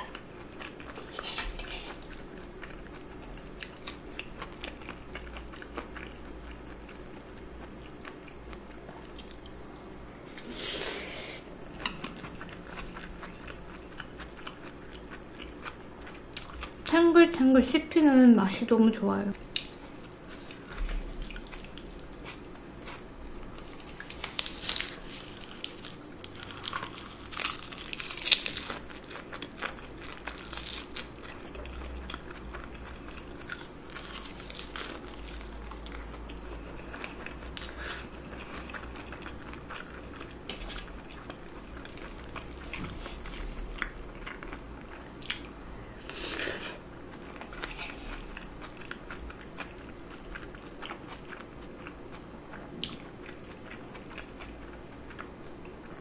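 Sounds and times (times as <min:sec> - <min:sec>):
wet chewing and mouth smacks: 0:47.2 - 0:55.3.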